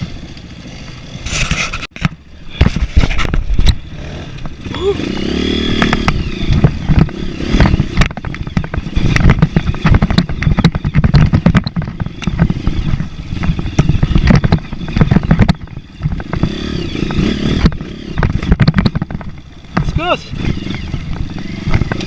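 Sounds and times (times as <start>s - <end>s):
motorcycle engine at low revs: 0.0s - 22.0s
knocks and rattles from bumps: 5.2s - 22.0s.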